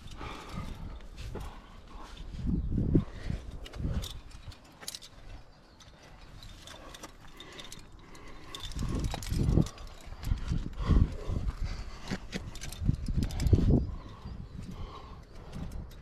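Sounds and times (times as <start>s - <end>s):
metal climbing gear clinking: 0.0s - 16.0s
wind buffeting microphone: 0.0s - 16.0s.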